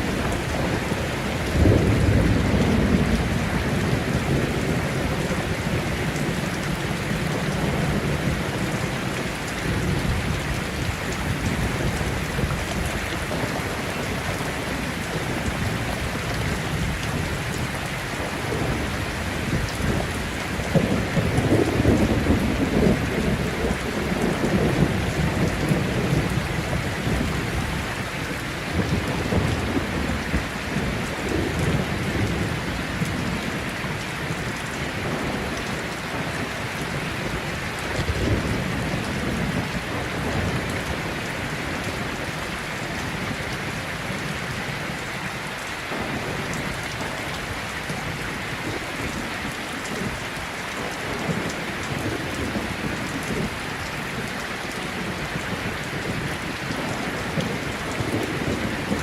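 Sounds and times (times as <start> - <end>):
rolling thunder: 0.0 - 41.2
heavy rain falling: 0.0 - 59.0.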